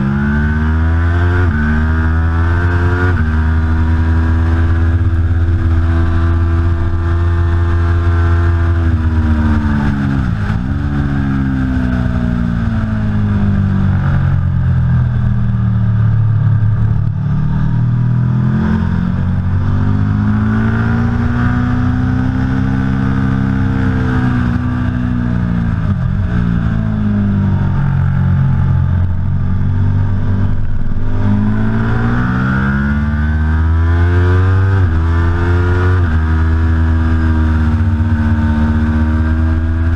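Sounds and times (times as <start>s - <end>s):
motorcycle engine running hard: 0.0s - 39.9s.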